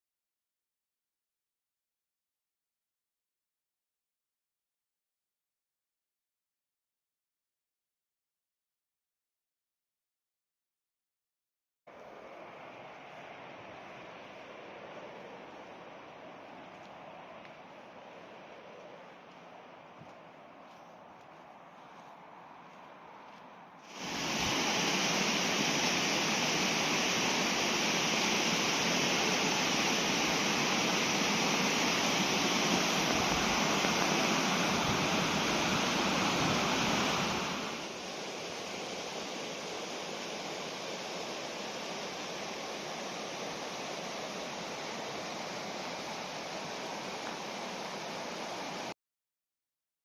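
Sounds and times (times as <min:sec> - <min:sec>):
river water rushing: 0:23.9 - 0:48.9.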